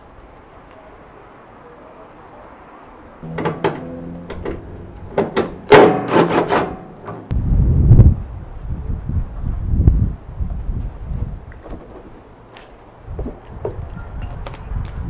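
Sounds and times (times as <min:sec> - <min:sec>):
short ringing tone: 0:03.2 - 0:05.7
low wind rumble on microphone: 0:07.3 - 0:15.0.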